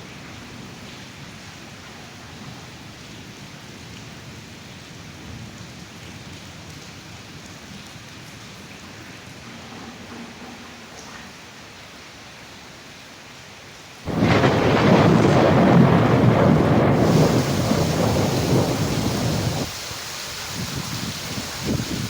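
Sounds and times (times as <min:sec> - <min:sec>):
rain hissing: 0:14.0 - 0:22.0
deep rumble of thunder: 0:14.1 - 0:19.8.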